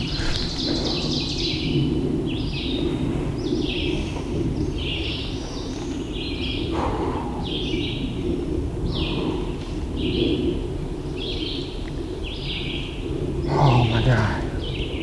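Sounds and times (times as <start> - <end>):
low background rush: 0.0 - 15.0
small birds singing: 0.0 - 15.0.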